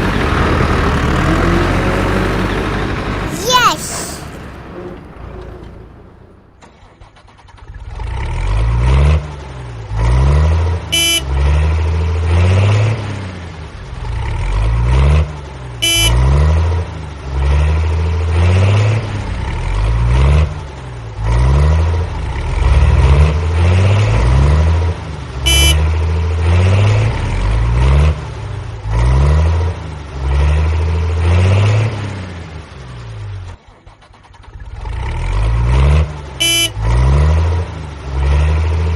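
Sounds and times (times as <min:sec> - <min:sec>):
cartoon vehicle engine: 0:10.9 - 0:11.7, 0:15.8 - 0:16.3, 0:25.4 - 0:26.0, 0:33.6 - 0:37.2
short horn toot: 0:11.0 - 0:11.3, 0:15.8 - 0:16.2, 0:25.5 - 0:25.8, 0:36.4 - 0:36.8.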